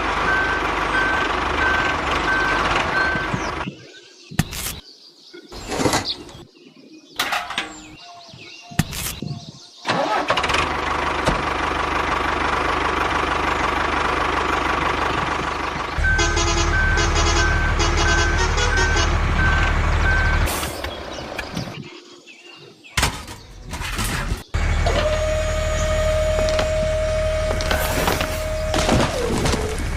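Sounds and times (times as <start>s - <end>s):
mini tractor engine running: 9.9s - 17.1s.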